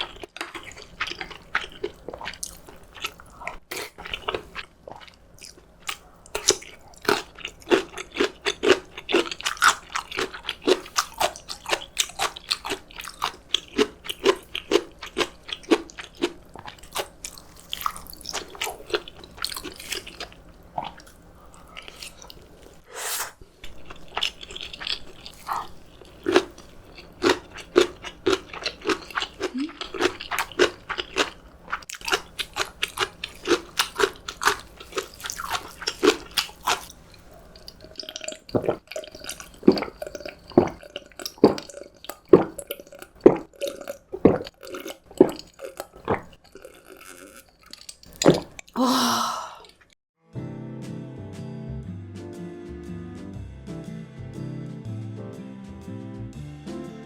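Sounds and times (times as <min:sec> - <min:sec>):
person chewing and crunching food: 0:00.0 - 0:22.9, 0:23.6 - 0:50.0
wet mouth clicks: 0:47.7 - 0:48.8.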